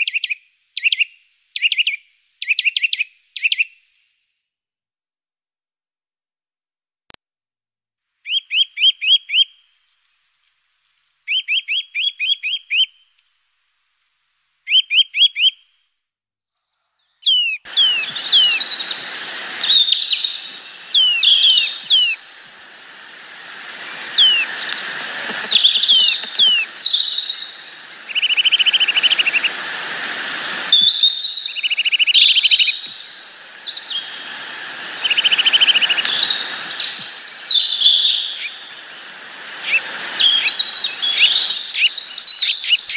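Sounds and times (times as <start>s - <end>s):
background hiss: 0.0s - 4.3s, 8.2s - 15.9s, 16.8s - 42.9s
songbirds singing: 16.7s - 42.9s.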